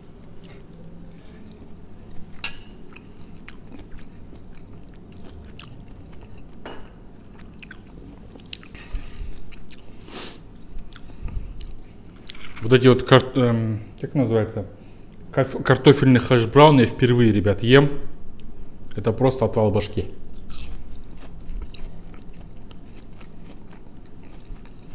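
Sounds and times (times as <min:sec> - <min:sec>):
man chewing salad: 0:00.0 - 0:12.6, 0:20.2 - 0:24.9.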